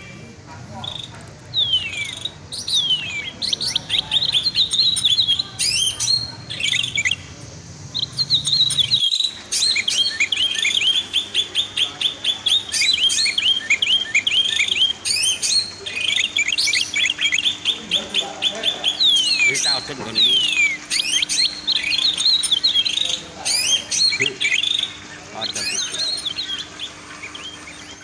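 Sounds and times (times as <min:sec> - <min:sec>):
songbird chirping: 0:00.0 - 0:28.0.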